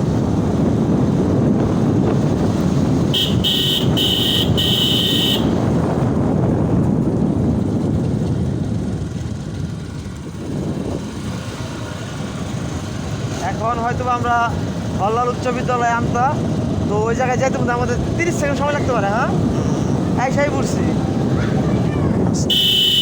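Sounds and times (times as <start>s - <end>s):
motorcycle engine and wind rumble: 0.0s - 23.0s
horn beeps: 3.2s - 5.6s, 22.5s - 23.0s.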